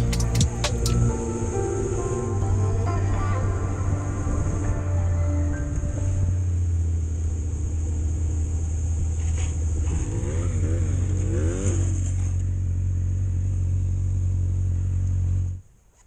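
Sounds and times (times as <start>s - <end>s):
motorcycle engine running: 0.0s - 5.2s, 5.9s - 15.7s
wavering tone: 0.0s - 6.8s.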